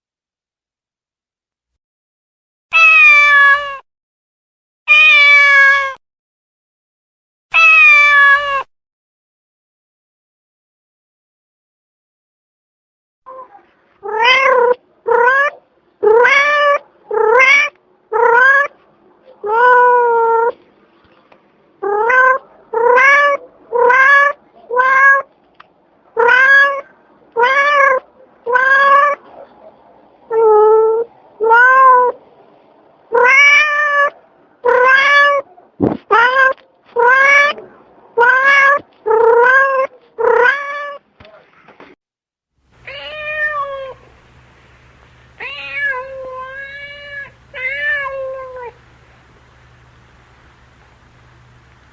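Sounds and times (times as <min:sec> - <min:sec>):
cat meowing: 0:02.7 - 0:03.8, 0:04.9 - 0:06.0, 0:07.6 - 0:08.7, 0:13.3 - 0:18.7, 0:19.4 - 0:20.6, 0:21.8 - 0:25.3, 0:26.2 - 0:29.2, 0:30.3 - 0:32.2, 0:33.1 - 0:35.5, 0:36.1 - 0:37.6, 0:38.2 - 0:41.0, 0:42.8 - 0:44.4, 0:45.3 - 0:51.8.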